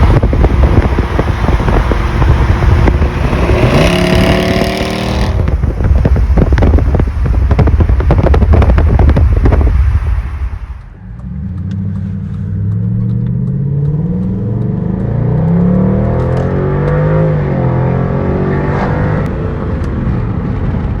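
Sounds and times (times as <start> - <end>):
car exhaust accelerating: 0.0 - 21.0.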